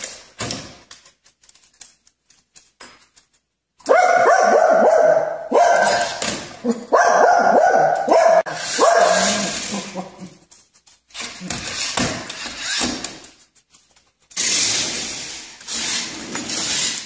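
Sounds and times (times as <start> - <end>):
dog barking: 3.8 - 10.0.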